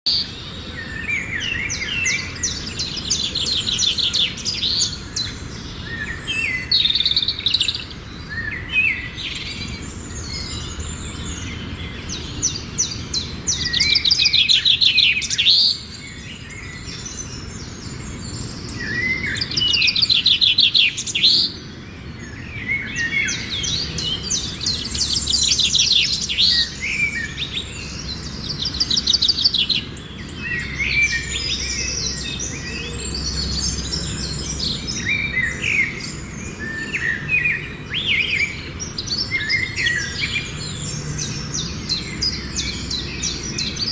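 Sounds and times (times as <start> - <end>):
songbirds chirping and trilling: 0.0 - 43.9.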